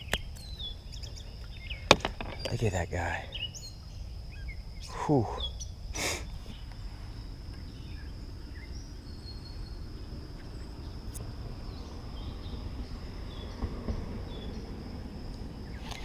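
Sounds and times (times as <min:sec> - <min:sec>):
faint bird chirps: 0:00.0 - 0:13.6
insect high-pitched trill: 0:00.0 - 0:16.0
low steady rumble: 0:06.5 - 0:15.8.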